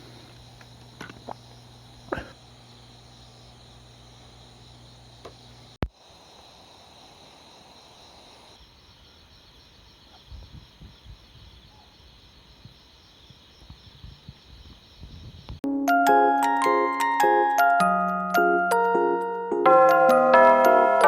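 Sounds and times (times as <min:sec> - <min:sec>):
night insects trilling: 0:00.0 - 0:15.6.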